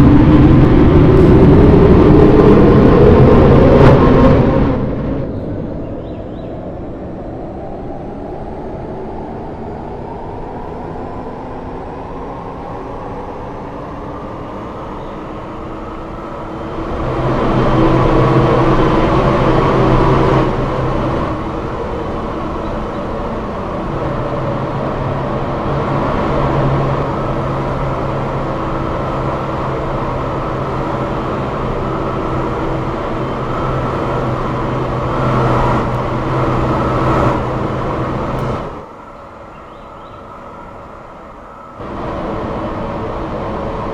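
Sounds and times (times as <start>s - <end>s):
train running noise: 0.0s - 43.9s
electric motor whine: 14.0s - 38.9s.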